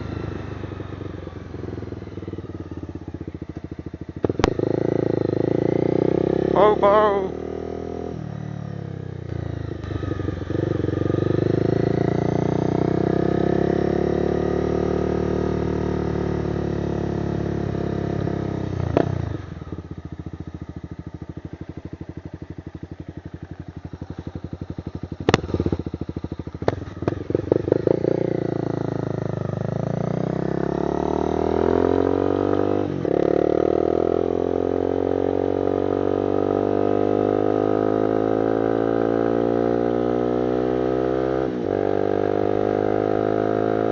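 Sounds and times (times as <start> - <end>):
motorcycle engine revving: 0.0 - 43.9
exhaust pops: 4.3 - 4.6, 25.2 - 25.8.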